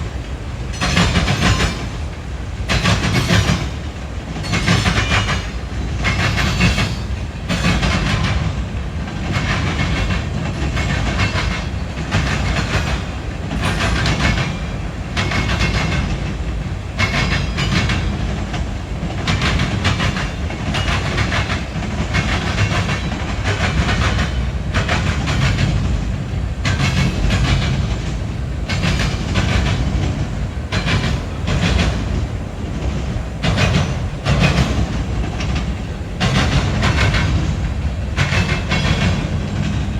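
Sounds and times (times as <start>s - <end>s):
freight train rumble: 0.0s - 39.9s
wheels clacking over rail joints: 0.0s - 39.9s.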